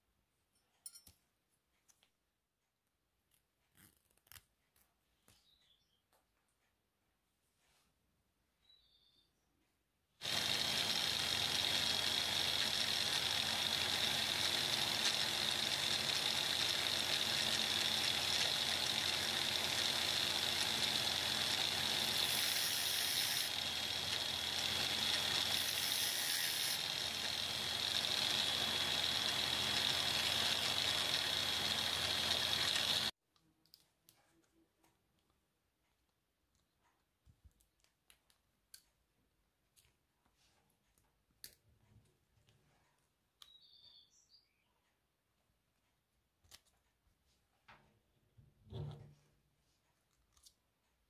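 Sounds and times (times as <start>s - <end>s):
angle grinder whining: 10.2s - 33.1s
grinder winding down: 10.2s - 33.1s
grinding metal cable: 10.2s - 33.1s.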